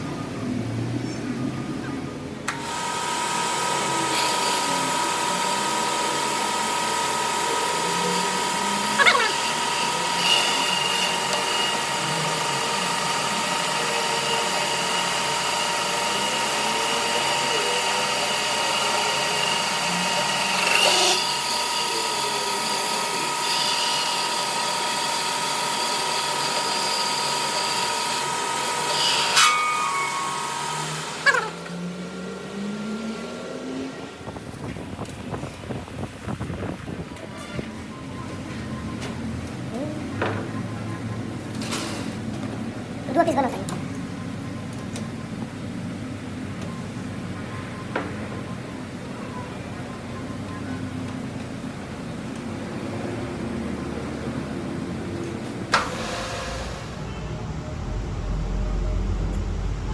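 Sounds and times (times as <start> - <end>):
electric motor whining: 2.5 - 34.4.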